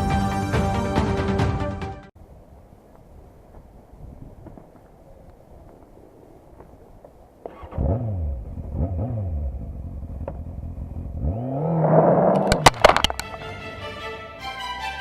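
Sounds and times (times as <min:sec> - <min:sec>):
music: 0:00.0 - 0:02.1, 0:13.1 - 0:15.0
exhaust cracks: 0:03.0 - 0:13.6
motorcycle engine revving: 0:07.4 - 0:13.1.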